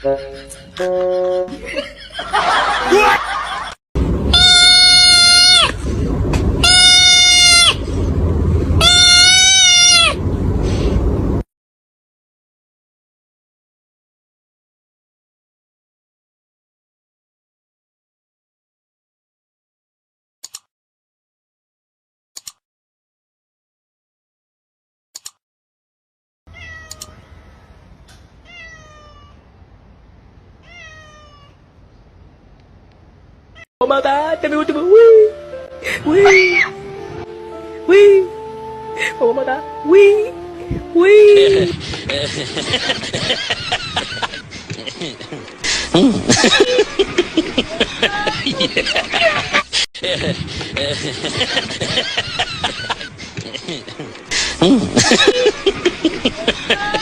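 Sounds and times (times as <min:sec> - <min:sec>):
low rumble: 0:04.0 - 0:07.1, 0:07.7 - 0:09.1, 0:10.1 - 0:11.4
animal long high cries: 0:04.3 - 0:05.8, 0:06.6 - 0:07.8, 0:08.8 - 0:10.2, 0:36.1 - 0:36.8
cat meowing: 0:04.3 - 0:05.8, 0:06.6 - 0:07.8, 0:08.8 - 0:10.2, 0:26.5 - 0:27.6, 0:28.4 - 0:29.4, 0:30.6 - 0:31.6
sharp clicks: 0:25.2 - 0:25.4.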